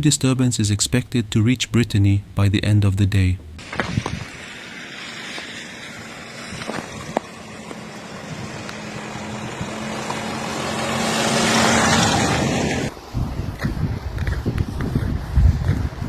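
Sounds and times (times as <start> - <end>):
wind buffeting microphone: 3.5 - 4.5, 6.4 - 10.1, 11.7 - 16.0
motor vehicle passing: 3.6 - 16.0.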